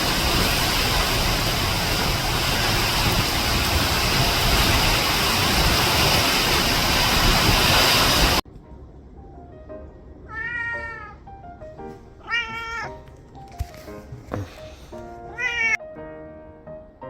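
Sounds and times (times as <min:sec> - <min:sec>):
soft background music: 0:08.4 - 0:17.0.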